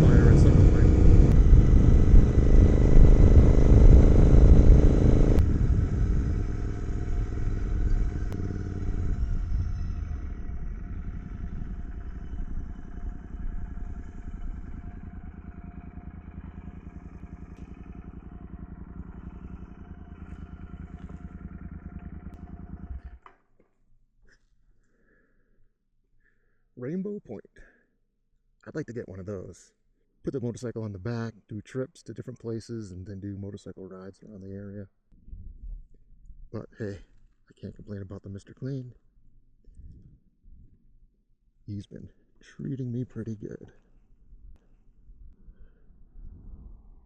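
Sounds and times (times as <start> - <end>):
motorcycle engine: 0.0 - 23.4
wind rush: 46.1 - 47.0.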